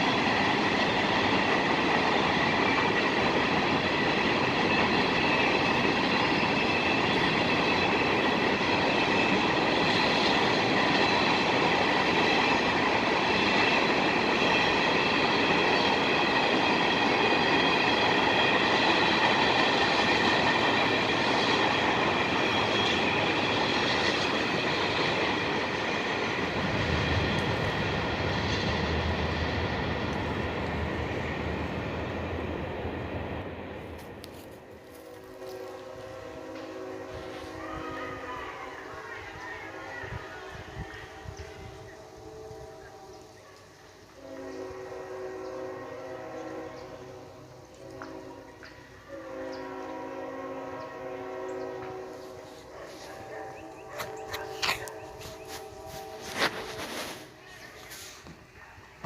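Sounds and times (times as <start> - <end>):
train wheels clattering on rails: 0.0 - 36.8.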